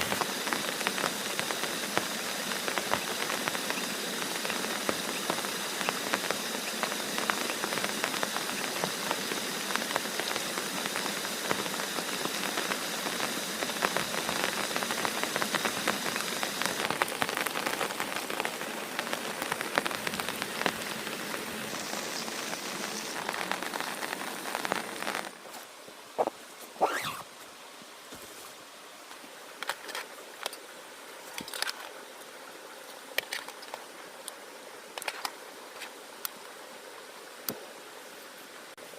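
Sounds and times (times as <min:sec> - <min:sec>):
heavy rain falling: 0:00.0 - 0:25.4.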